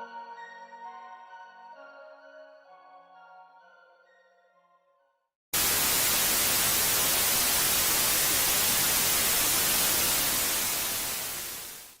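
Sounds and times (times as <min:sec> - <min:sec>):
white noise hiss: 0:05.6 - 0:12.0.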